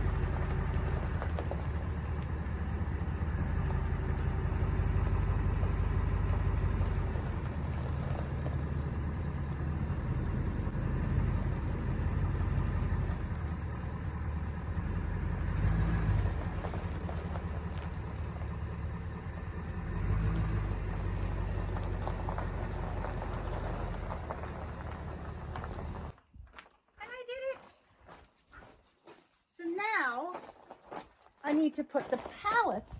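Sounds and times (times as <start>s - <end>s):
pickup truck engine idling: 0.0s - 26.1s.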